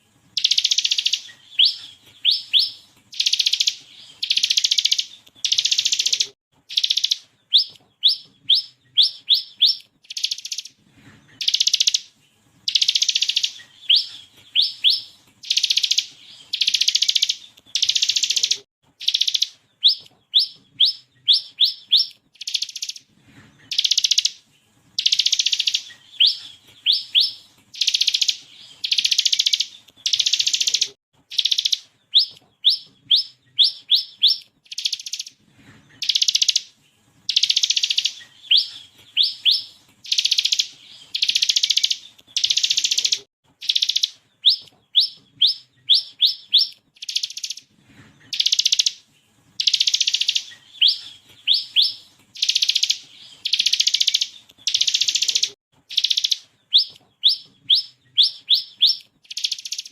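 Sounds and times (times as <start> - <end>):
bird singing high rising notes: 0.4 - 10.8, 11.4 - 24.4, 25.0 - 35.4, 37.3 - 47.7, 49.6 - 59.9.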